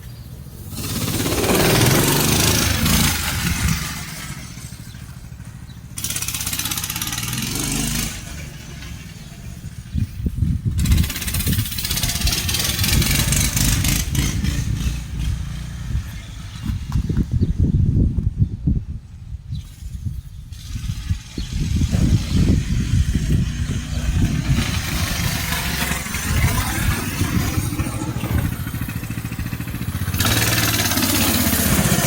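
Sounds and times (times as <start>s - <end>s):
mini bike engine running: 0.1s - 17.5s, 20.5s - 32.0s.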